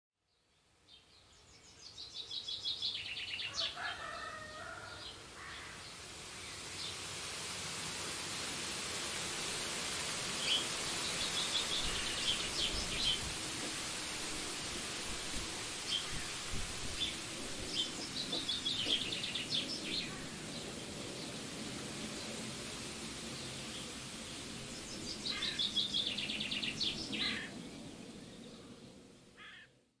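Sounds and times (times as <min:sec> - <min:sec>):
background hiss: 0:00.5 - 0:29.4
birds chirping in trills: 0:10.4 - 0:13.4, 0:15.2 - 0:22.4, 0:23.2 - 0:29.0.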